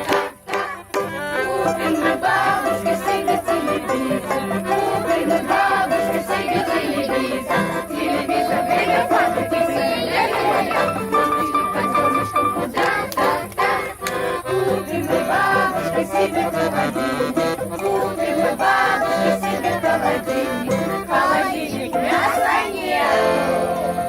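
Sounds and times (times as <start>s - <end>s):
group singing folk song: 0.0s - 24.0s.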